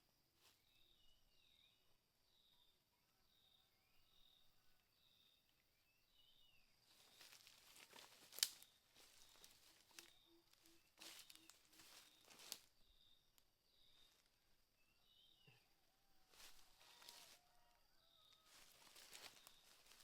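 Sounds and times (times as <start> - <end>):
faint bird or insect chirps: 0.0 - 20.0
dry leaves rustling: 6.9 - 12.7, 16.3 - 17.4, 18.5 - 20.0.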